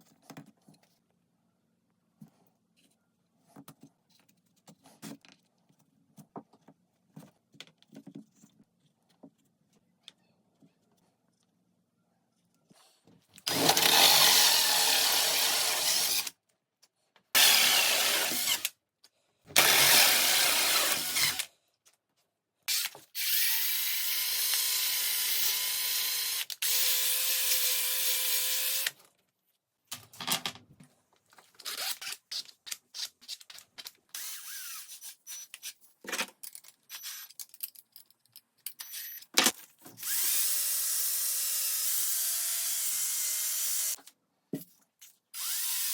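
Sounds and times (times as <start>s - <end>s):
power tool cutting wood: 13.5s - 16.3s, 17.4s - 18.7s, 19.6s - 21.5s, 40.0s - 44.0s.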